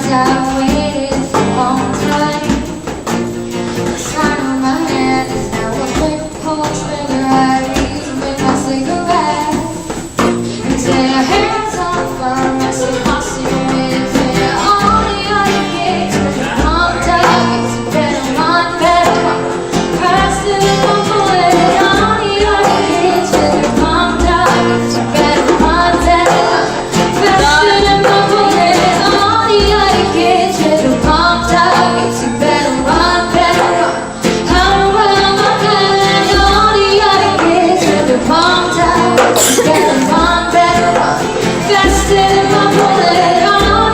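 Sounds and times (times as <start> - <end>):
person singing: 0.0 - 3.1, 3.8 - 43.9
strummed guitar: 0.0 - 43.9
steady beat: 39.2 - 41.0.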